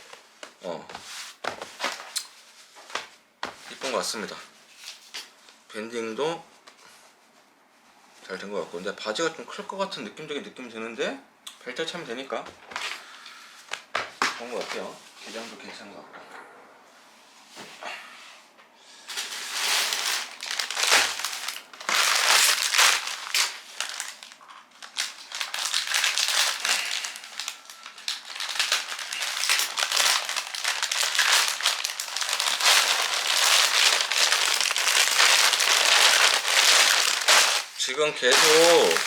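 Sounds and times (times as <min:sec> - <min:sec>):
plastic packaging crinkling: 0:01.5 - 0:02.3, 0:19.1 - 0:39.0.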